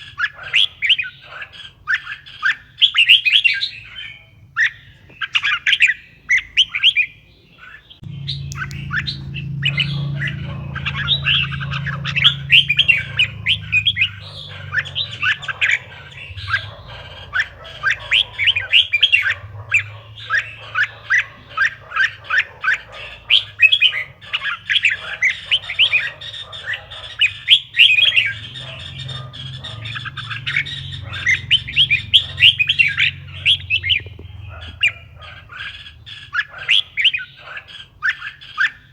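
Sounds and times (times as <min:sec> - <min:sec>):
bird singing chirping notes: 0:00.0 - 0:38.9
steady low hum: 0:08.0 - 0:22.0, 0:28.1 - 0:35.6.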